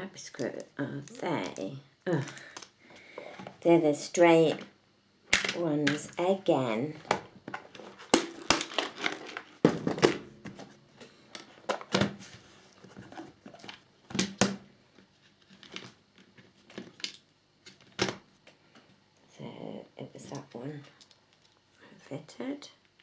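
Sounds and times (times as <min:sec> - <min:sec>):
plastic bag crinkling: 0:07.4 - 0:11.9.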